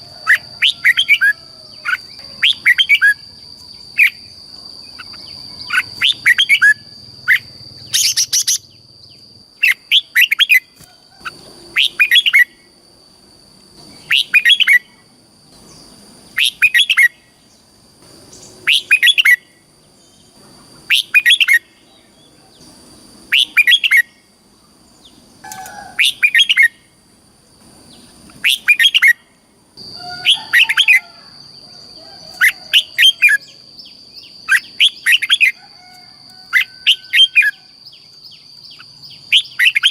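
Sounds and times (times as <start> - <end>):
bird singing warbling phrases: 0.2 - 12.6, 13.9 - 15.0, 15.7 - 17.7, 18.3 - 20.3, 20.9 - 22.7, 23.3 - 24.3, 25.0 - 26.8, 28.0 - 29.3, 29.9 - 31.1, 32.3 - 35.6, 36.5 - 39.9.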